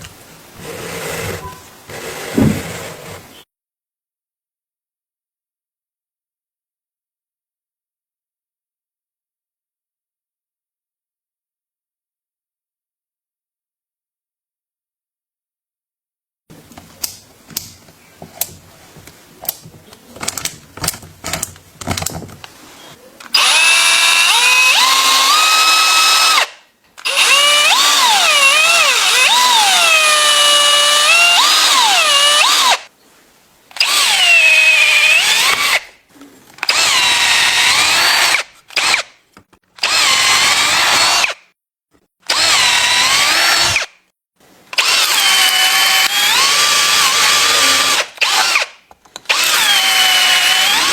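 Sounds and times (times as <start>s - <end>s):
electric drill motor whine: 22.8s - 26.5s, 27.1s - 32.8s, 33.8s - 35.8s, 36.7s - 39.0s, 39.8s - 41.4s, 42.3s - 43.9s, 44.8s - 48.7s, 49.3s - 50.9s.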